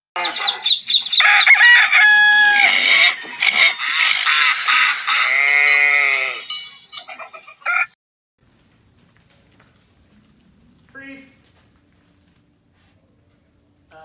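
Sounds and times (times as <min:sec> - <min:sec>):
animal and bird calls: 0:00.2 - 0:07.9.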